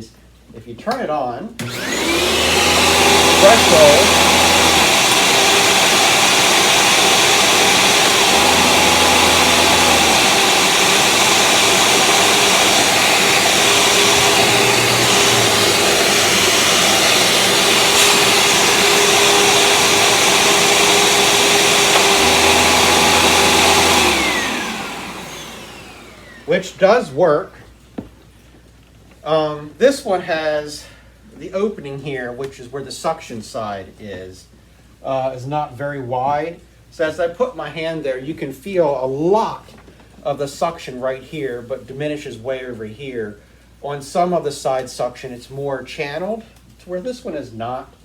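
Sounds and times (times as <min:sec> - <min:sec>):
upright vacuum cleaner running: 0:01.6 - 0:27.2
vacuum brush roll hum: 0:01.6 - 0:27.2.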